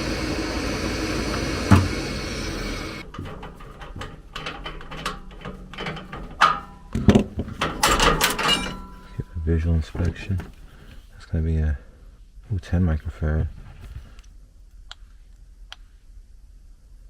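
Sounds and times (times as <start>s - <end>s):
gas furnace running: 0.0s - 9.6s.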